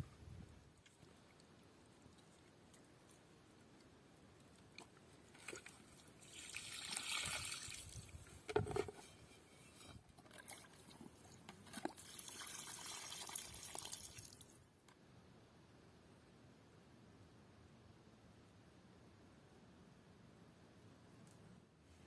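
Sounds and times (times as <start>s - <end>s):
liquid pouring: 12.0s - 14.4s.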